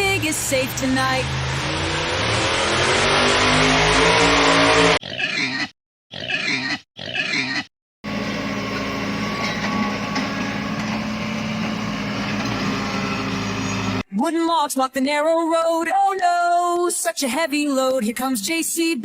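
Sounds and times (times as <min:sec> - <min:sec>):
engine running: 0:00.0 - 0:05.0, 0:08.0 - 0:14.0
pig oinking: 0:05.0 - 0:07.7
vehicle engine running: 0:08.0 - 0:14.0.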